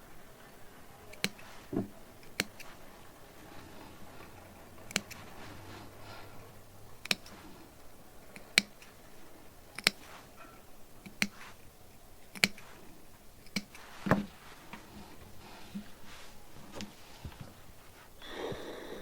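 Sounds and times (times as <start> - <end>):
sharp clicks: 1.1 - 1.5, 2.2 - 2.8, 4.8 - 5.3, 7.0 - 7.4, 8.2 - 9.0, 9.7 - 10.1, 11.0 - 11.4, 12.2 - 12.8, 13.4 - 13.8.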